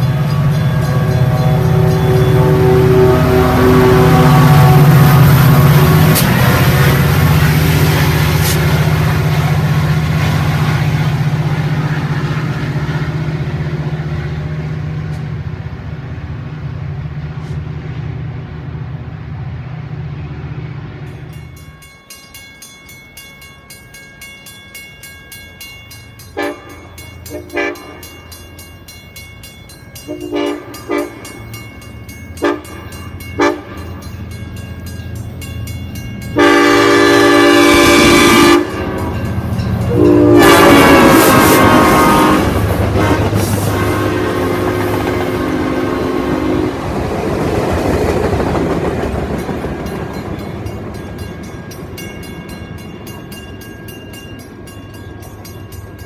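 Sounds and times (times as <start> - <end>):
diesel locomotive engine droning: 0.0 - 56.0
locomotive air horn blasts: 1.0 - 7.4, 26.4 - 28.0, 30.1 - 31.2, 32.4 - 32.8, 33.4 - 33.9, 36.4 - 39.2, 39.9 - 46.8.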